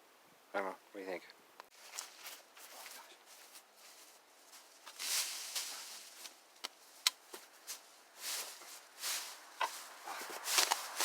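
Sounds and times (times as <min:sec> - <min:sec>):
footsteps rustling through brush: 0:01.7 - 0:11.0
sharp snaps: 0:06.6 - 0:07.2.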